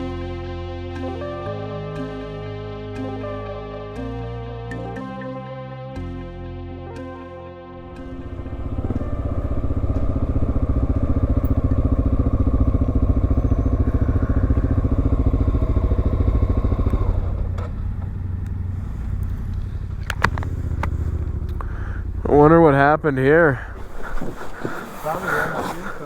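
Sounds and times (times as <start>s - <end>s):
motorcycle engine running: 7.8s - 26.0s.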